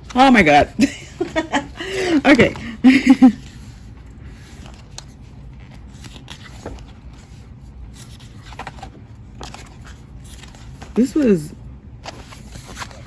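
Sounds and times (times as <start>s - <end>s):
paper and plastic rustling: 2.3s - 11.4s, 12.0s - 13.0s.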